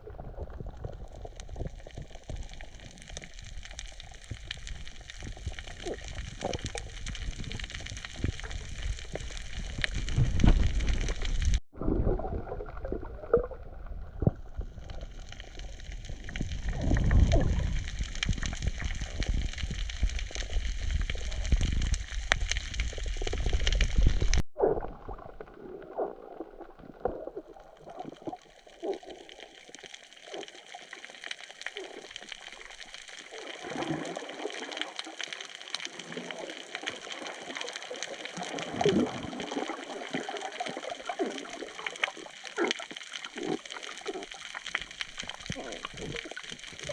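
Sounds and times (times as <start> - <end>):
water sloshing and gurgling: 0.0 - 46.9
low rumble: 6.5 - 25.4.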